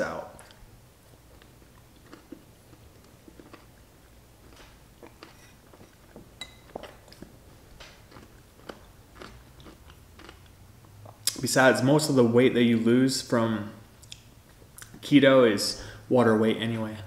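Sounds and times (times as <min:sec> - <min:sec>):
chewing pickle with crunches: 0:00.4 - 0:11.4.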